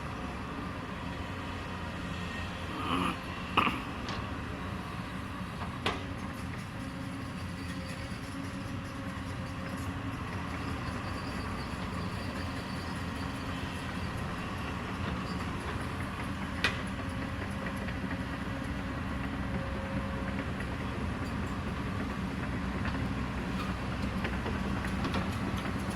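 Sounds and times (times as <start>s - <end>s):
excavator diesel engine running: 0.0s - 25.9s.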